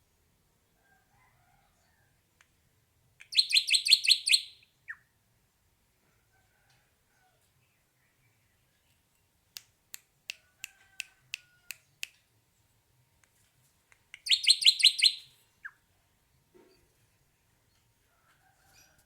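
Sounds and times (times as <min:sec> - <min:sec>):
bird calling with metallic clicks: 0:14.2 - 0:15.4
bird chattering high notes: 0:14.3 - 0:15.3.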